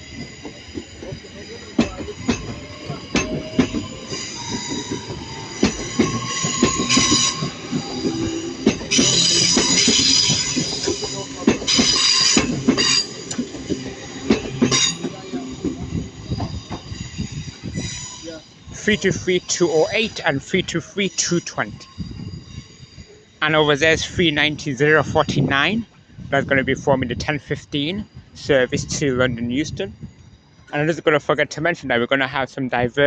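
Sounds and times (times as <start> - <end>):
train wheels clicking over rail joints: 0.1 - 18.6
high-pitched wheel squeal: 2.4 - 18.5.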